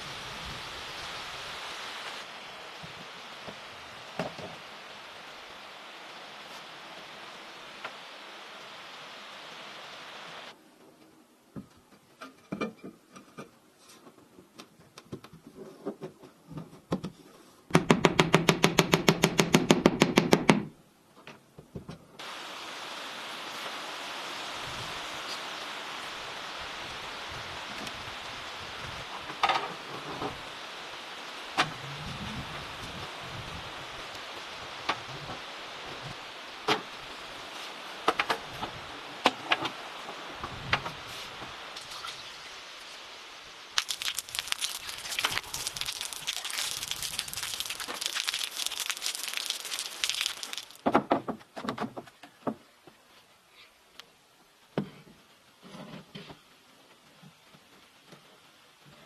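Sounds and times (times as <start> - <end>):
rain hiss: 0.0 - 11.5, 22.2 - 50.9.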